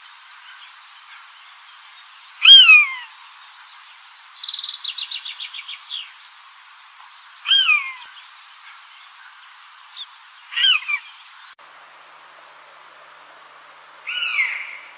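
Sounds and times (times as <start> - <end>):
downward-slurred bird call: 2.4 - 3.1, 14.1 - 14.9.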